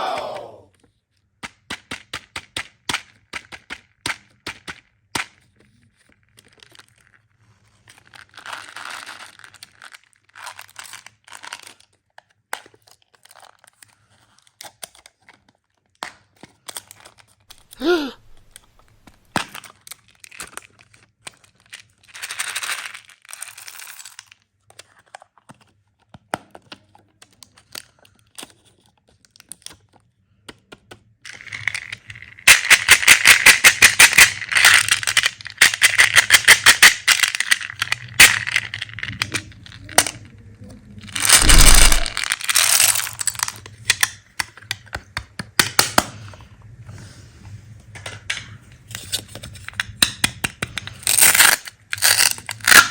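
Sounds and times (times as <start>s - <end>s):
hard candies clattering in container: 22.1s - 24.3s, 31.3s - 39.4s, 41.1s - 43.6s, 51.0s - 52.9s.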